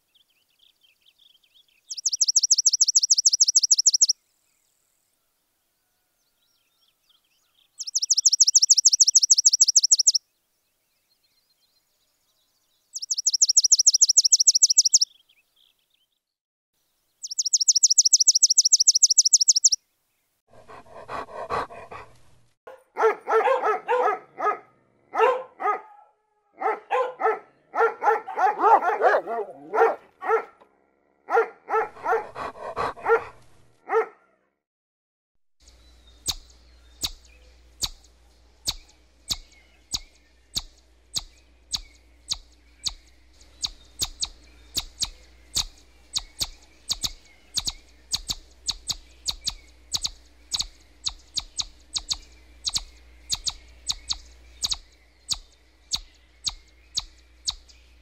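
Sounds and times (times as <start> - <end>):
squirrels chirping: 1.8 - 4.2, 7.7 - 10.2, 12.9 - 15.2, 17.2 - 19.8, 35.6 - 58.0
dog barking: 20.6 - 34.4.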